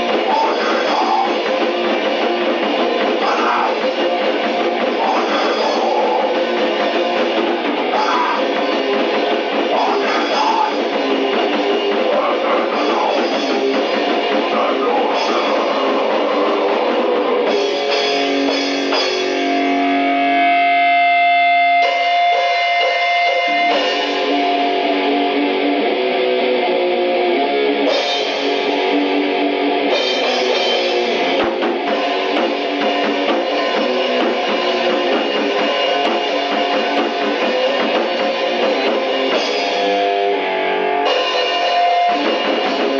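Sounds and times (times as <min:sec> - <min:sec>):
punk band playing: 0:00.0 - 0:42.9
ringing guitar notes: 0:16.8 - 0:42.9.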